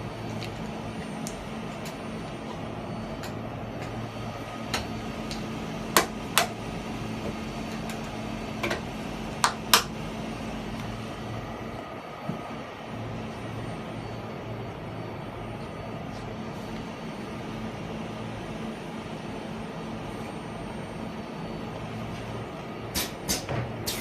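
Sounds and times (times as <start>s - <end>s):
welding machine humming: 0.0s - 12.0s
pneumatic hisses: 22.9s - 24.0s.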